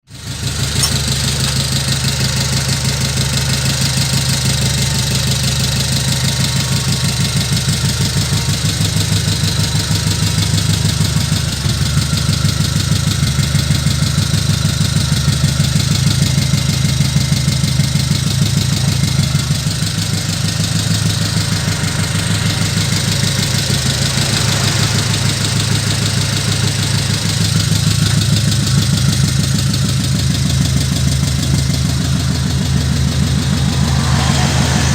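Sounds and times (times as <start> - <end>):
engine idling: 0.1 - 34.9.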